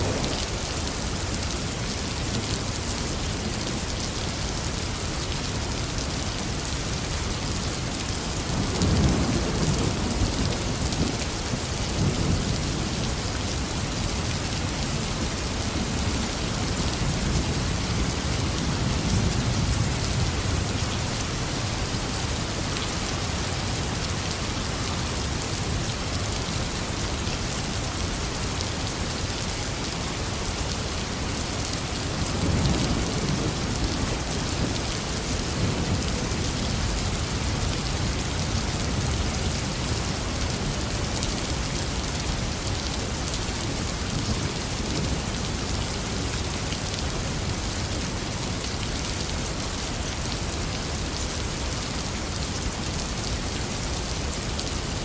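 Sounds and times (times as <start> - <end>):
low thunder rumbles: 0.0 - 1.4
heavy rain: 0.0 - 55.0.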